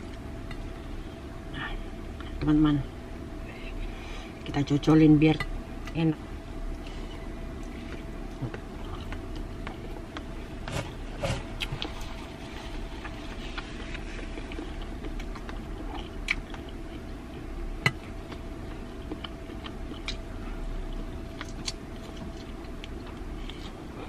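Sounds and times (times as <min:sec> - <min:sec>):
faint steady hum: 0:00.0 - 0:24.0
person chewing: 0:06.7 - 0:24.0.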